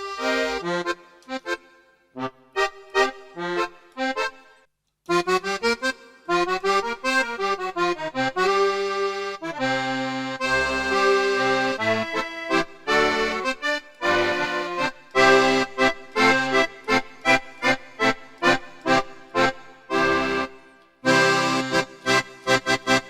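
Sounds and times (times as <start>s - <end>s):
keyboard accordion chords: 0.0s - 23.0s
keyboard bass line: 6.3s - 23.0s.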